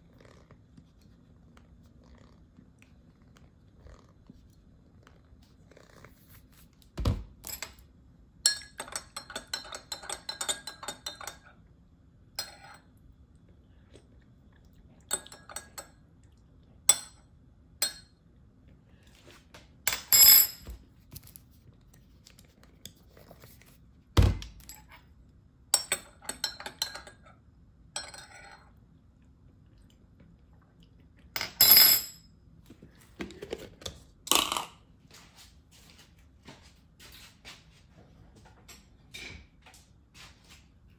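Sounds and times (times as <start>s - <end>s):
kitchenware knocks and thumps: 7.0s - 7.6s
metal spoon clinking against mug: 8.5s - 11.4s, 12.4s - 12.8s, 15.1s - 15.9s, 25.8s - 27.2s, 28.0s - 28.6s.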